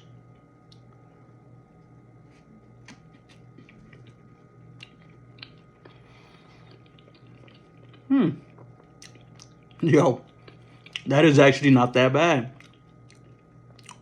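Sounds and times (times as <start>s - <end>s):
low steady hum: 0.0s - 14.0s
faint chewing: 2.3s - 11.1s, 12.6s - 14.0s.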